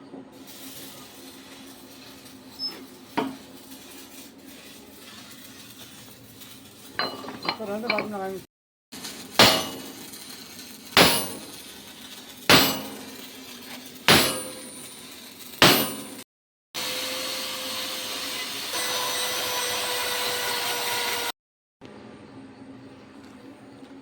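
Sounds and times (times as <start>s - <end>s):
hissing tool noise: 0.4s - 8.4s, 9.0s - 16.2s, 16.8s - 21.3s
hammer striking steel: 7.0s - 8.2s, 9.4s - 10.2s, 11.0s - 11.6s, 12.5s - 13.3s, 14.1s - 16.2s.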